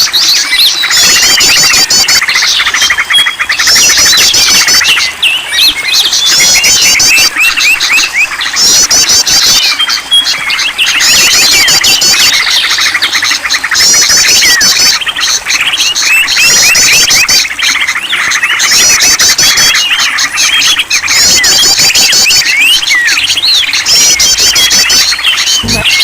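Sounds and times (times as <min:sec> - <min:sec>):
chorus of songbirds: 0:00.0 - 0:26.0
fast high bird chirping: 0:18.4 - 0:26.0.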